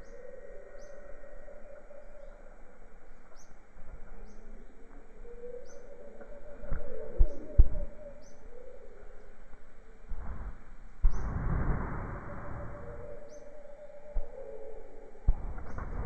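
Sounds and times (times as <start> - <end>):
birds chirping: 0.0 - 9.4, 10.2 - 11.4, 12.2 - 16.0
wavering drawn-out bird call: 12.2 - 15.2.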